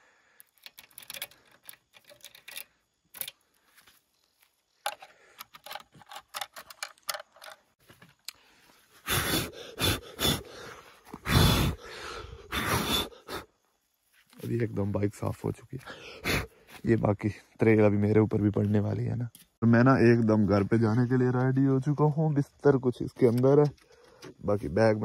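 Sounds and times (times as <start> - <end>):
keys and lock clicking and rattling: 0.4 - 3.4, 4.9 - 7.7.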